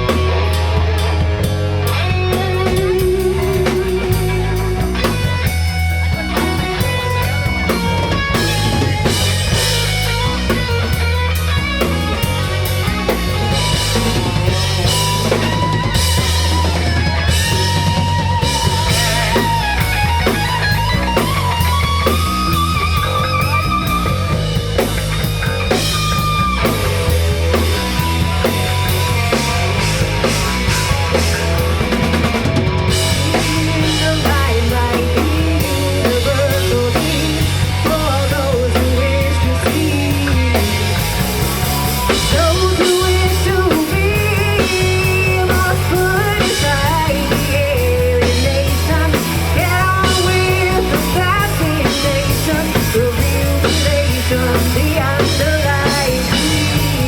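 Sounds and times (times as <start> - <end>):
lead guitar held notes with vibrato: 0.0 - 33.4
rock band playing: 0.0 - 57.0.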